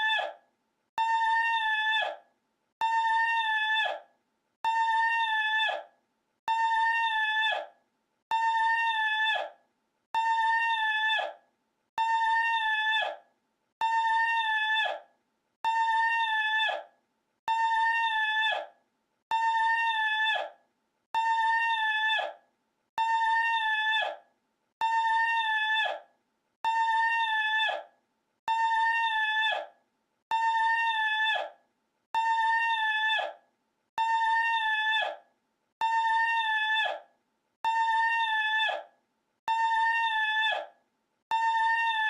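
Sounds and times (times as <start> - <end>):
looped high cry: 15.7 - 16.8, 37.6 - 38.8.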